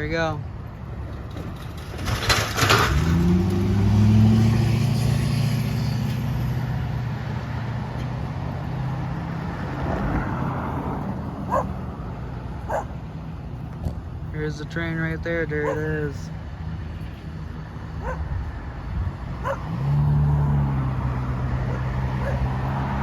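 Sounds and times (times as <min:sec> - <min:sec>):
engine speeding up: 0:01.9 - 0:13.7, 0:17.0 - 0:23.0.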